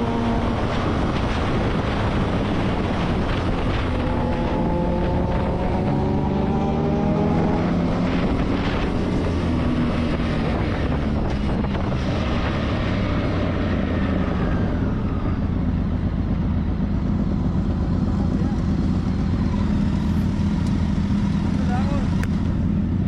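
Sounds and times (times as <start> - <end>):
wind noise on microphone: 0.0 - 16.2
motorcycle engine: 0.0 - 23.0.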